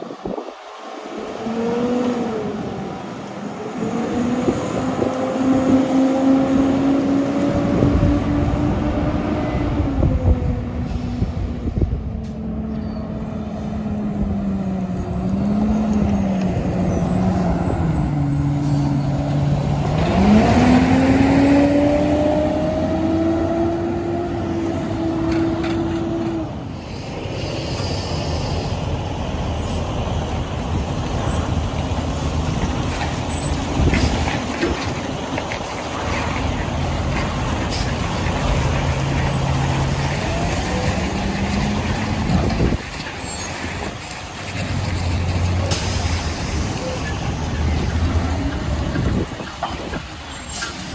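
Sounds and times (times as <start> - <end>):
diesel truck engines running: 0.0 - 50.9
engine revving up: 14.9 - 26.6.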